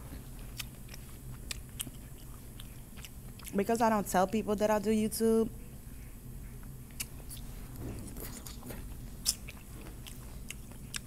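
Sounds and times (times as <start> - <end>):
person chewing food: 0.1 - 3.6, 6.4 - 11.0.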